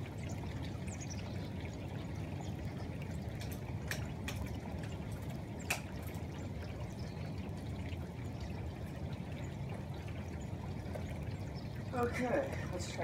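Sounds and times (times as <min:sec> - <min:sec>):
water drips ticking: 0:00.0 - 0:13.0
water pouring and trickling: 0:00.0 - 0:13.0
steady rain: 0:02.4 - 0:11.1, 0:11.8 - 0:13.0.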